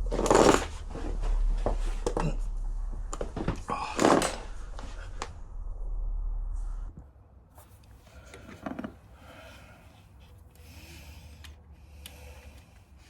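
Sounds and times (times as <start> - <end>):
low rumble: 0.0 - 7.3.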